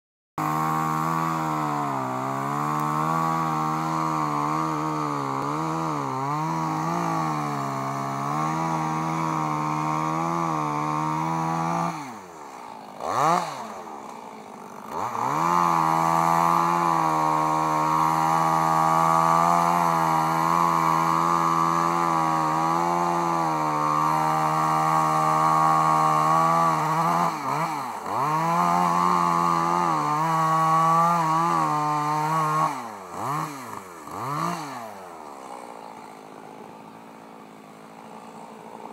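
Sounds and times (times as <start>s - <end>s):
small engine running: 0.4s - 38.9s.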